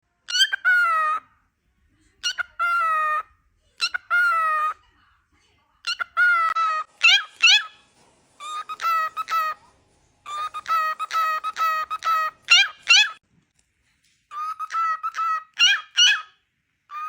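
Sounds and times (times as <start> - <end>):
cockatiel whistled calls: 0.3 - 1.2, 5.9 - 7.8, 8.4 - 9.6, 10.2 - 13.2, 14.3 - 17.0.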